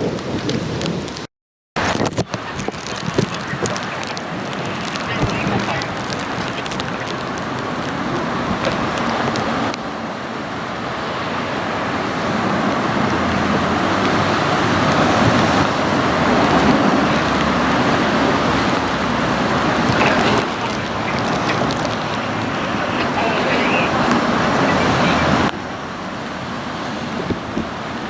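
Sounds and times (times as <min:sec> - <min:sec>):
road traffic rushing past: 0:01.8 - 0:28.0.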